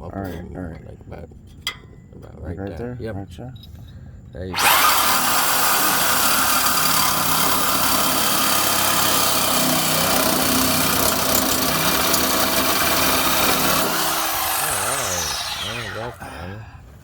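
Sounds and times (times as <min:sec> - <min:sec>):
power saw cutting metal pipe: 0:04.6 - 0:16.5.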